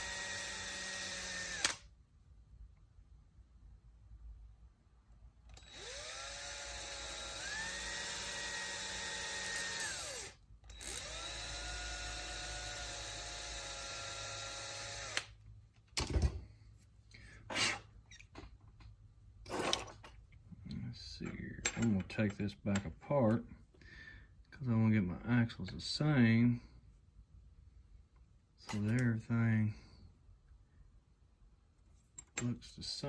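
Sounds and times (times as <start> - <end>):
electric drill drilling: 0.0 - 1.8, 5.6 - 15.4.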